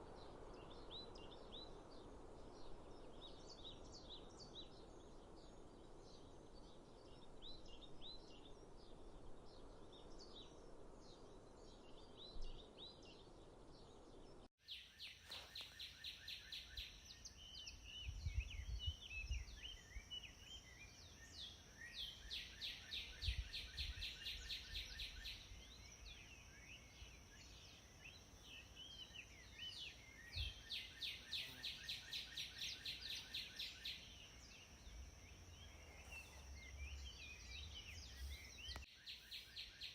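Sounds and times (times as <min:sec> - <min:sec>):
wild birds chirping: 0:00.0 - 0:39.9
bird song repeated notes: 0:14.2 - 0:39.9.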